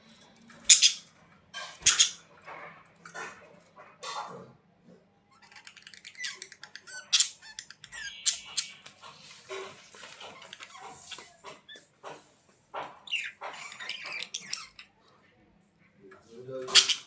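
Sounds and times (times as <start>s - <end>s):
budgerigars chattering: 0.7s - 1.1s, 1.8s - 2.2s, 5.5s - 11.3s, 16.6s - 17.0s.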